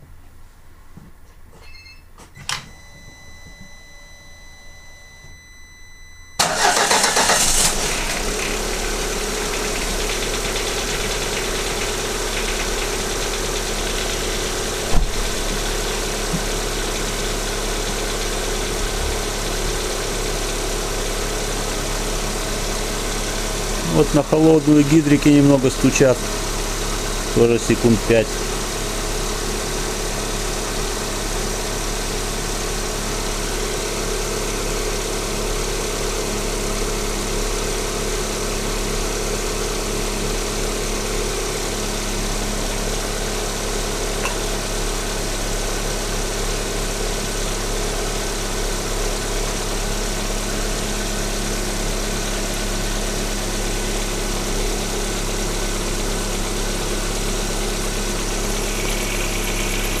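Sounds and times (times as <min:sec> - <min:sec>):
engine lifters ticking: 0:06.4 - 0:16.3
car engine idling: 0:06.4 - 1:00.0.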